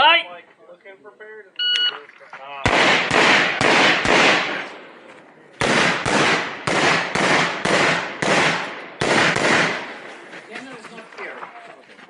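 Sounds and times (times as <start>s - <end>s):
rifle shots echoing: 2.0s - 10.1s.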